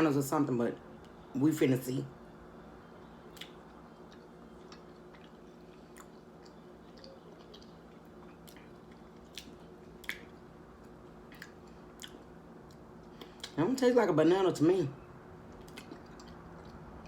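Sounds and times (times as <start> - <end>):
faint steady hum: 0.0 - 17.0
person chewing: 3.3 - 13.6, 15.5 - 17.0.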